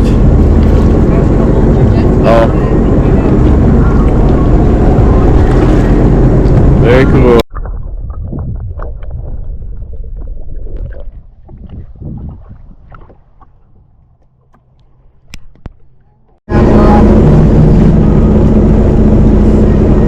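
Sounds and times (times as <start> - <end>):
low steady engine hum: 0.0 - 7.4, 12.7 - 20.0
water sloshing and gurgling: 0.0 - 16.0.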